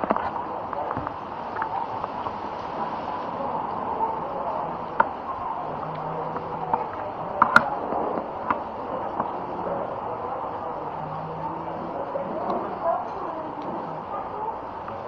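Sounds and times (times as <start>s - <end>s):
busy eatery background noise: 0.0s - 15.0s.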